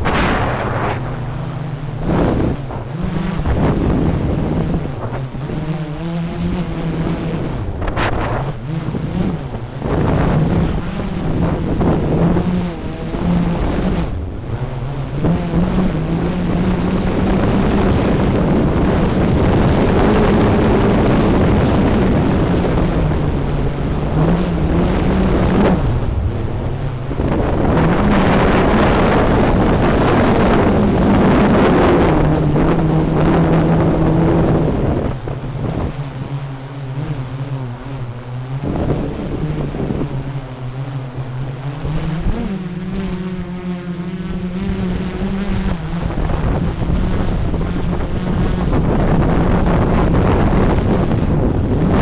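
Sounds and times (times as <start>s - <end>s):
rushing noise: 0.0s - 5.4s
drone propellers whirring: 0.0s - 52.0s.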